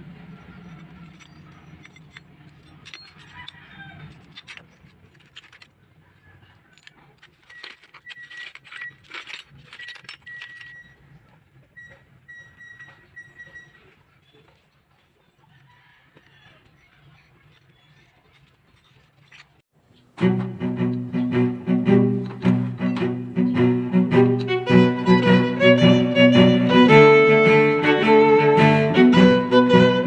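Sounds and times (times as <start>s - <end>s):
metal parts clinking: 0.6s - 11.9s, 17.2s - 19.6s.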